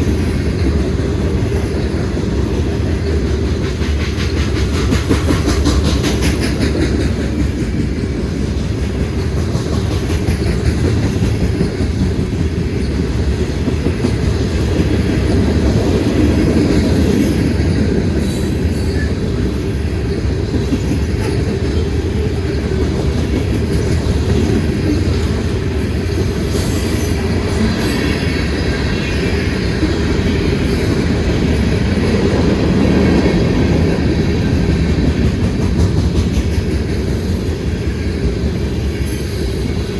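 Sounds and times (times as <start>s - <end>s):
wheels clacking over rail joints: 0.0s - 28.7s
freight train rumbling past: 0.0s - 39.9s.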